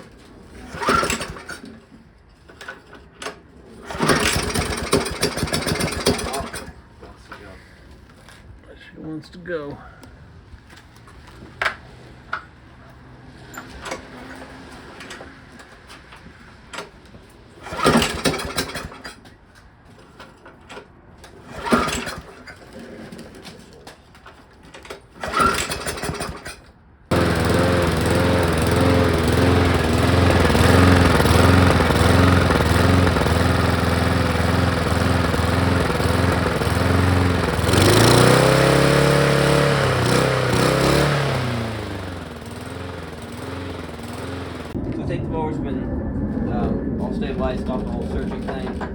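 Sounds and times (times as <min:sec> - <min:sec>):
lawn mower pull-start: 0:00.0 - 0:06.8, 0:13.4 - 0:19.4, 0:20.0 - 0:44.8
lawn mower engine surging: 0:00.5 - 0:01.8, 0:03.8 - 0:06.9, 0:17.5 - 0:19.2, 0:21.5 - 0:22.5, 0:25.2 - 0:48.9.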